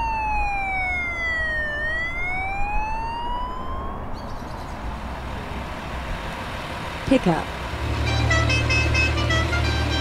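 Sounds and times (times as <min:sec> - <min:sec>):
police siren wailing: 0:00.0 - 0:04.2.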